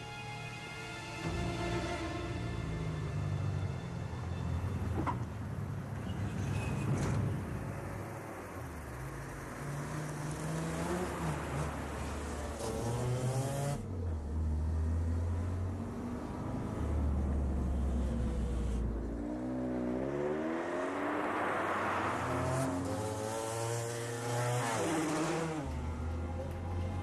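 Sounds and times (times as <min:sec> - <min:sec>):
car engine accelerating: 0:07.8 - 0:27.0.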